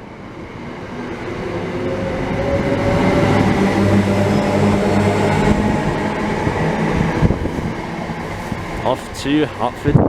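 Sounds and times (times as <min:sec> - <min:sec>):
electric train motors humming: 0:00.0 - 0:10.0
wheels rumbling on rail: 0:00.0 - 0:10.0.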